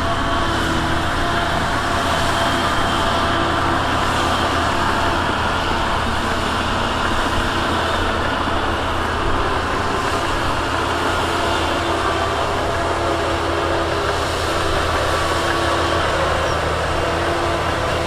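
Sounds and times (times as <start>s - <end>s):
heavy diesel engine running: 0.0s - 18.0s.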